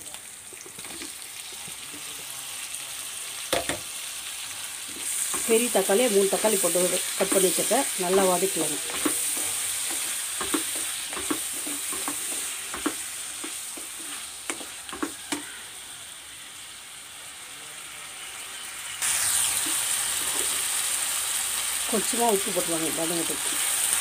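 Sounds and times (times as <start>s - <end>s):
vegetables sizzling in hot oil: 0.0s - 24.0s
spatula knocking and scraping pan: 6.4s - 15.5s.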